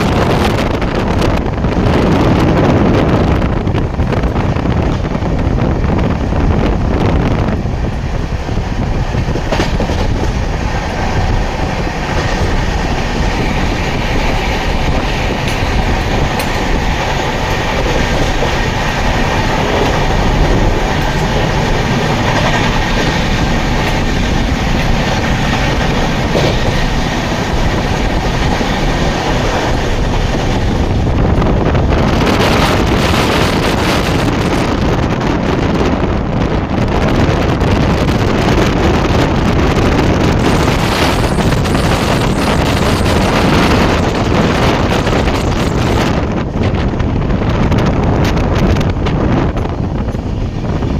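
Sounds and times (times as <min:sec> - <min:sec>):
train wheels on rails: 0:00.0 - 0:50.9.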